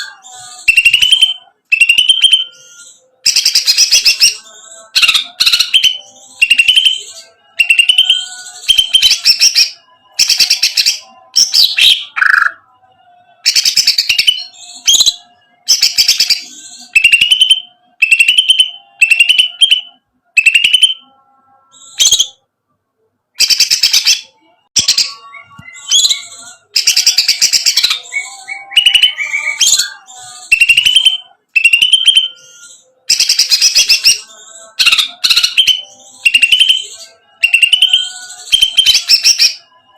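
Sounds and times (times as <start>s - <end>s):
bird singing rattling whistled phrases: 0.0s - 12.6s, 23.4s - 39.7s.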